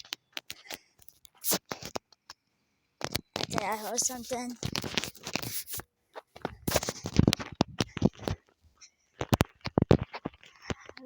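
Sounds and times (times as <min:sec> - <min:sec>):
walking and handling noise: 0:03.0 - 0:11.0.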